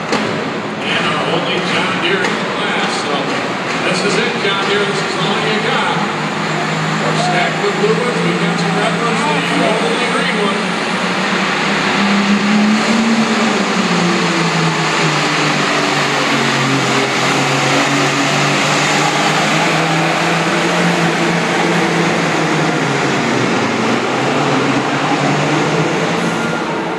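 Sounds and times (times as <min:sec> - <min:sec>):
tractor diesel engine under load: 0:00.0 - 0:26.9.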